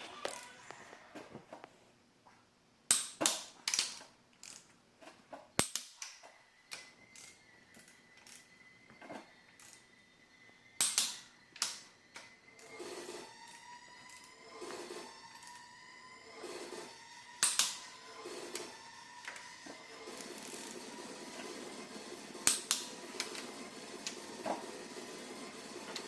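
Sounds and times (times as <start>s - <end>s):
hand tools clicking on metal: 5.6s - 9.9s, 10.8s - 12.8s.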